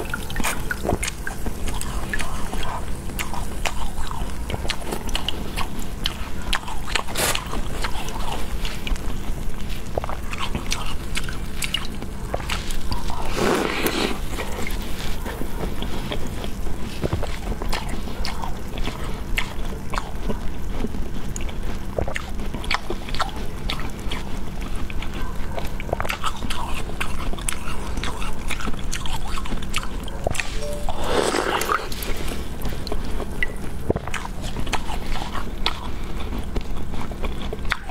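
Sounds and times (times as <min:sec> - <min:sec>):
crunchy food chewing: 0:00.0 - 0:37.9
low steady hum: 0:27.0 - 0:37.6.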